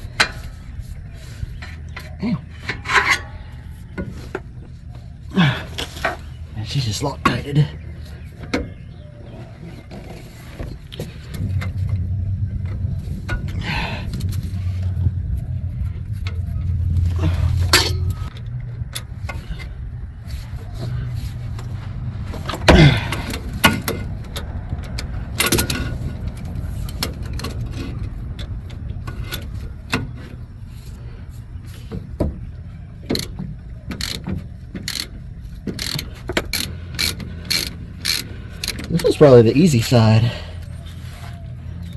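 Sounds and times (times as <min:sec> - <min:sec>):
low steady rumble: 0:00.0 - 0:41.9.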